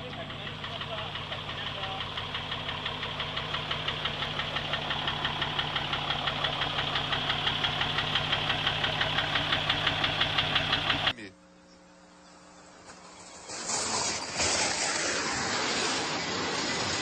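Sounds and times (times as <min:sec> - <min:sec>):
heavy engine throbbing: 0:00.0 - 0:11.3.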